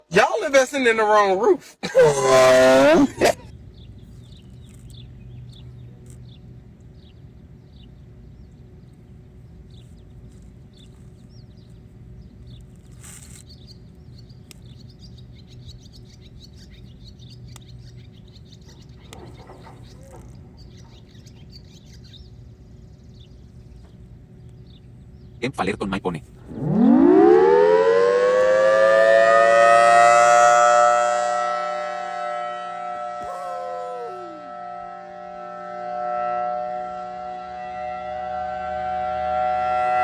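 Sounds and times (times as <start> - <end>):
steady low hum: 0.0 - 40.0
small birds chirping: 3.4 - 25.5.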